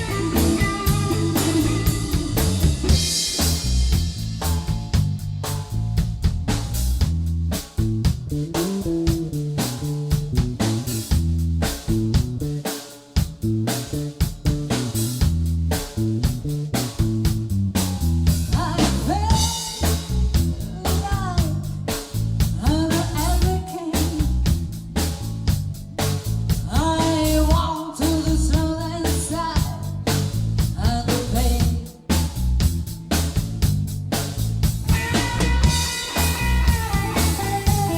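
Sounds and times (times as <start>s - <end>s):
bending electric guitar lines: 0.0s - 2.9s, 34.9s - 37.9s
rock-blues band playing: 0.0s - 5.8s, 7.6s - 37.9s.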